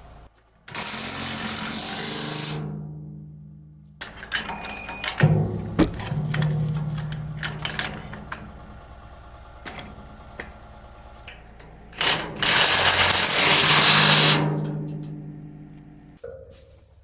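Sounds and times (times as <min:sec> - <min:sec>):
impact wrench hammering: 0:05.2 - 0:08.6.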